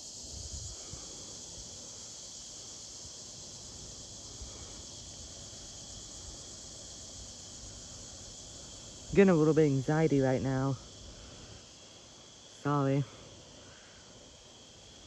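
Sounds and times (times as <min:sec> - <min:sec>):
cicadas droning: 0:00.0 - 0:15.0
low rumble of wind: 0:00.1 - 0:01.8.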